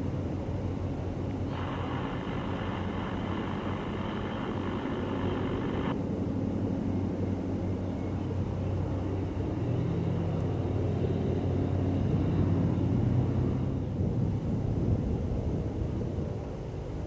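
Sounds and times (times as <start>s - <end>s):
diesel locomotive engine rumbling: 1.4s - 6.0s
air hiss: 1.5s - 5.9s.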